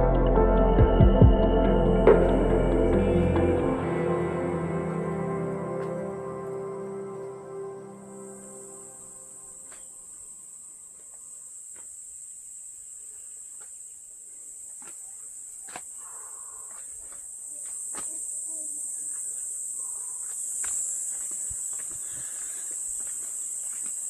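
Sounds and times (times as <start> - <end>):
high-pitched insect drone: 1.7 - 12.4.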